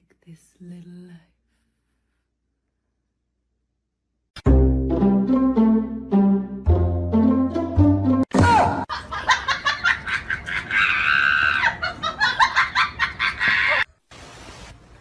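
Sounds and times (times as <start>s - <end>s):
background music: 4.4s - 8.3s
person laughing: 8.7s - 13.8s.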